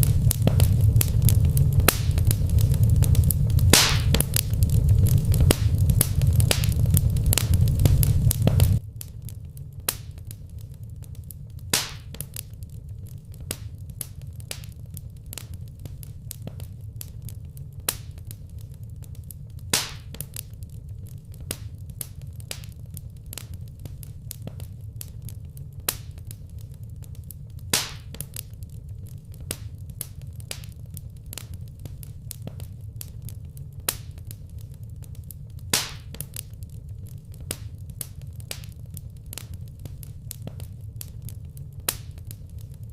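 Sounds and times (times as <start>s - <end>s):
loud pop of fire: 0.0s - 9.2s, 9.9s - 10.4s, 11.6s - 12.5s, 17.8s - 18.4s, 19.6s - 20.5s, 25.8s - 26.4s, 27.6s - 28.5s, 33.8s - 34.4s, 35.6s - 36.5s, 37.4s - 41.1s, 41.8s - 42.4s
fireplace fire crackling: 0.0s - 42.9s.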